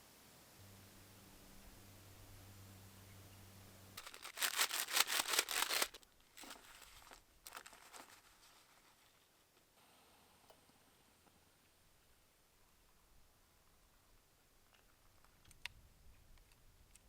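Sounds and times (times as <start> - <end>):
faint low hum: 0.0 - 17.0
plastic package crinkling and tearing: 4.0 - 8.5.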